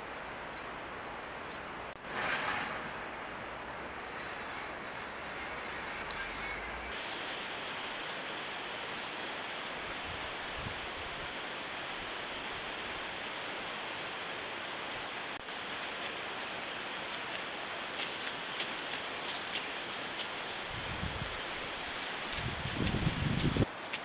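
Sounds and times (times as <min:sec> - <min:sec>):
faint high whine: 0:00.0 - 0:23.7
steady background hiss: 0:00.0 - 0:24.0.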